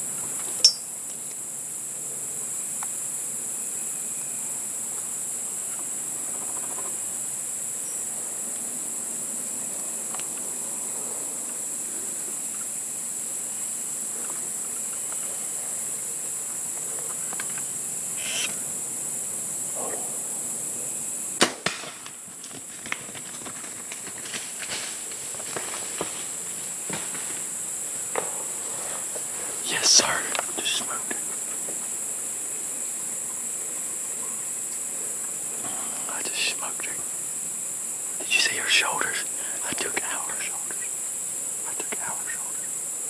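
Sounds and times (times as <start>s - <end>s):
crickets and insects droning: 0.0s - 43.0s
bow shot snap: 21.4s - 22.2s.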